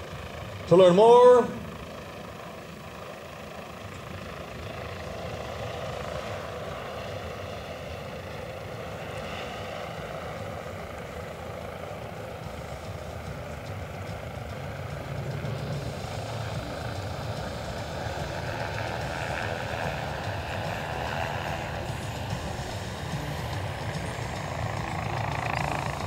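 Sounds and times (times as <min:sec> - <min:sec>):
helicopter turbine and rotor: 0:00.0 - 0:26.0.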